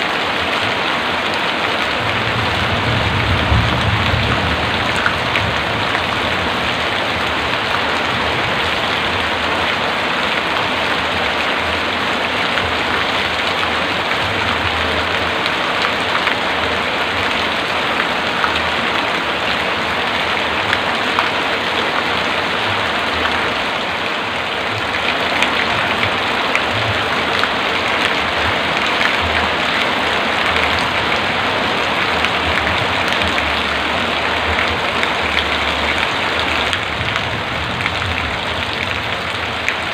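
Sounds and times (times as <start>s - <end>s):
heavy rain on hard surfaces: 0.0s - 39.9s.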